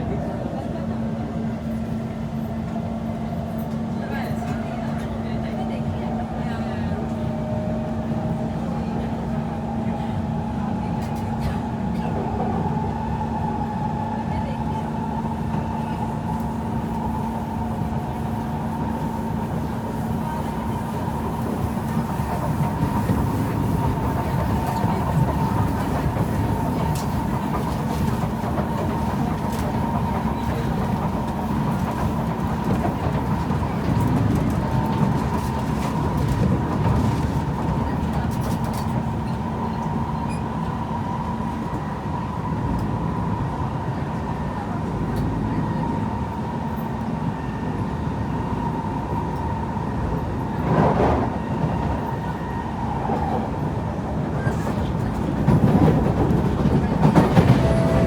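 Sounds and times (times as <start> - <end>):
train wheels rumbling on rails: 0.0 - 58.0
train motor whine: 57.2 - 58.0.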